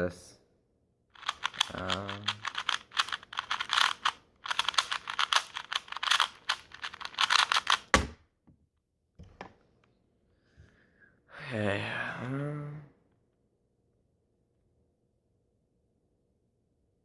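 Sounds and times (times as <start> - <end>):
puzzle cube layers clicking: 1.2 - 8.0.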